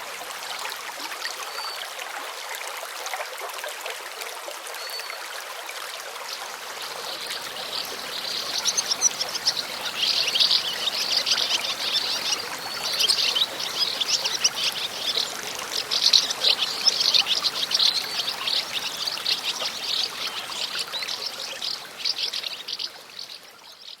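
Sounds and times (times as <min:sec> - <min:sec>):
running water trickling: 0:06.2 - 0:24.0
bird chirps: 0:06.9 - 0:24.0.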